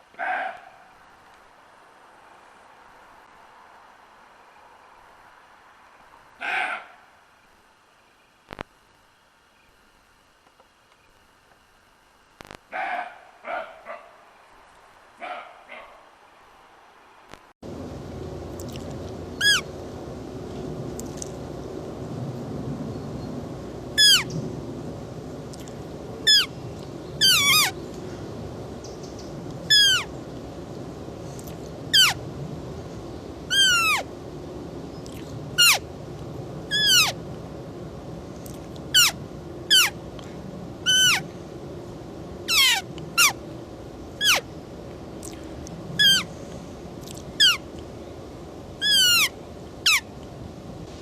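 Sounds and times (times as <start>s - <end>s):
background hiss: 0.0s - 51.0s
deer high-pitched calls: 19.4s - 19.7s, 24.0s - 24.3s, 26.3s - 26.5s, 27.2s - 27.8s, 29.7s - 30.1s, 31.9s - 32.2s, 33.5s - 34.1s, 36.7s - 37.2s, 38.9s - 40.0s, 40.8s - 41.3s, 42.5s - 43.4s, 44.2s - 44.5s, 46.0s - 46.3s, 47.4s - 47.6s, 48.8s - 50.1s.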